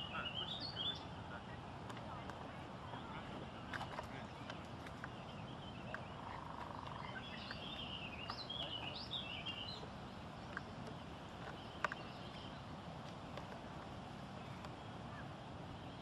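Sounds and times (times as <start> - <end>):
songbird twittering: 0.0 - 1.3, 2.3 - 12.8
outdoor background hum: 0.0 - 16.0.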